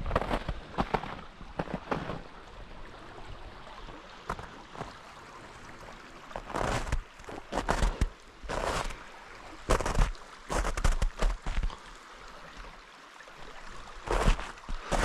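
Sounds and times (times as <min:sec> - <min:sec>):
footsteps on frozen snow: 0:00.0 - 0:02.2, 0:04.3 - 0:05.0, 0:06.3 - 0:09.0, 0:09.7 - 0:11.8, 0:14.1 - 0:15.0
small stream running: 0:00.0 - 0:15.0.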